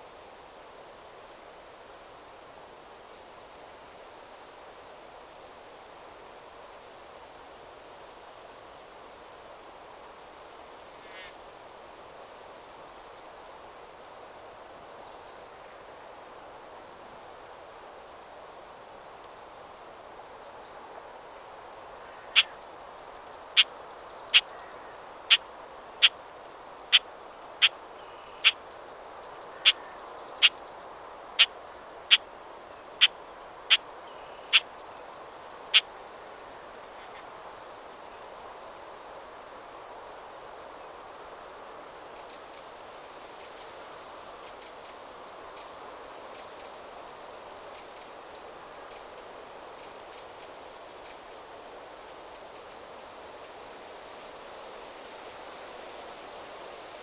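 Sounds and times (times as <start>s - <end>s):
wind rustling through trees: 0.0s - 57.0s
faint distant birdsong: 14.8s - 55.7s.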